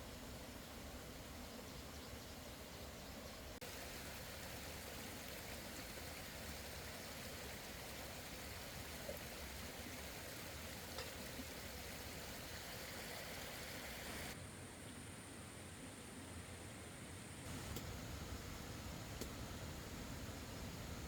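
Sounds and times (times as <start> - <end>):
rain falling: 3.6 - 14.4, 17.5 - 21.0
light drip taps: 10.9 - 11.4, 17.5 - 17.9, 19.2 - 19.4.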